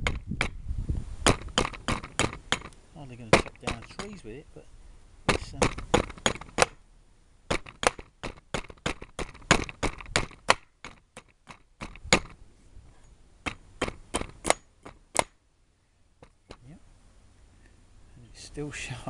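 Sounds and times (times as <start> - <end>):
axe chopping wood: 0.0 - 0.6, 1.2 - 4.2, 5.3 - 6.8, 7.5 - 12.4, 13.4 - 15.4.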